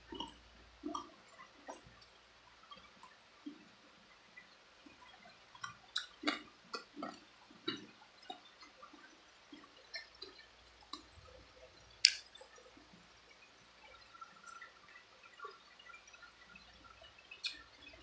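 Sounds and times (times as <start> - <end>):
chewing and crunching: 5.0 - 11.4.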